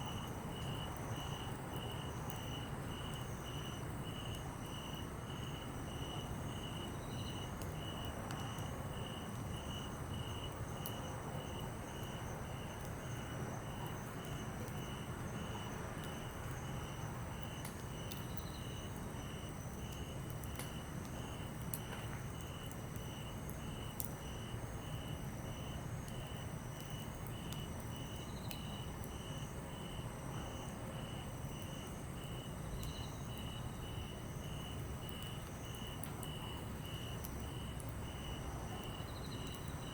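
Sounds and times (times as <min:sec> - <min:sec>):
campfire crackling: 0:00.0 - 0:39.9
insects chirping: 0:00.1 - 0:39.9
sharp pops of burning logs: 0:17.4 - 0:18.5, 0:19.8 - 0:24.2, 0:34.0 - 0:38.2.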